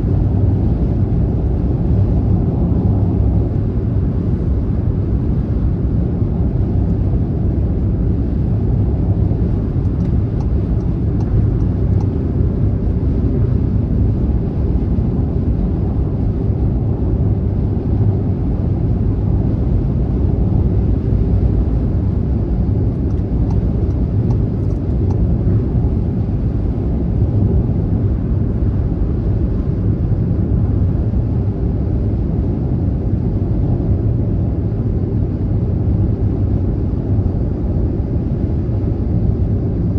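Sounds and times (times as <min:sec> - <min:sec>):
road and tyre rumble: 0:00.0 - 0:39.9.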